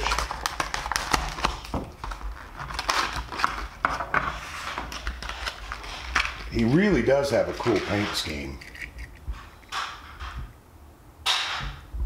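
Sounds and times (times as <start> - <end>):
plastic packaging being torn open: 0.0 - 4.1, 4.7 - 6.8.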